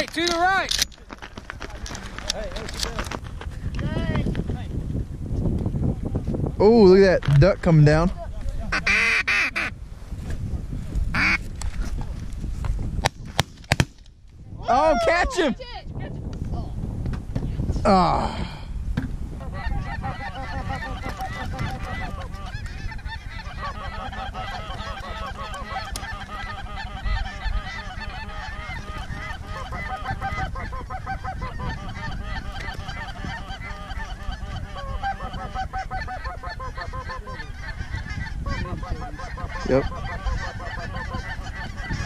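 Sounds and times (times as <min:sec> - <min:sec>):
geese honking: 0:08.7 - 0:09.8, 0:11.2 - 0:11.4, 0:19.4 - 0:42.0.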